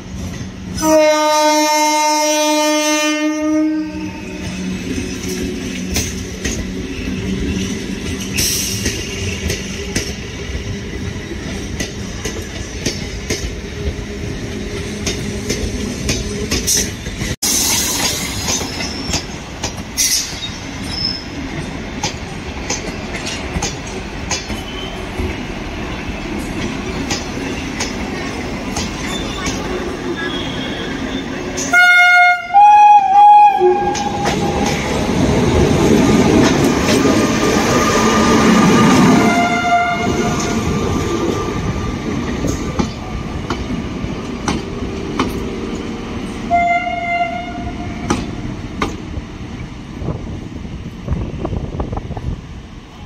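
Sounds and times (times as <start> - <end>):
train wheels clattering over rail joints: 14.7 - 25.4, 26.4 - 29.8, 40.4 - 46.0
high wheel squeal: 20.0 - 21.4, 29.0 - 31.8.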